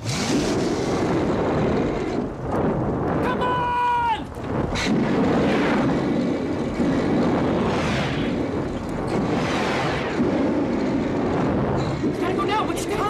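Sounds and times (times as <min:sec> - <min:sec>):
car engine accelerating hard: 0:00.0 - 0:02.4
road and tyre noise: 0:00.0 - 0:13.0.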